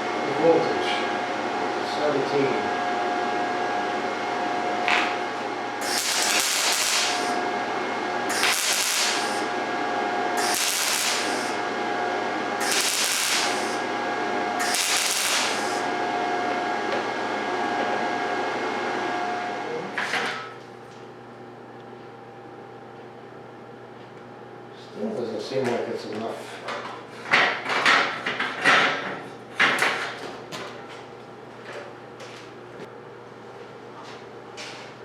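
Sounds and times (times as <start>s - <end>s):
steady hum: 5.6s - 16.6s
welding arc sizzling: 5.8s - 16.1s.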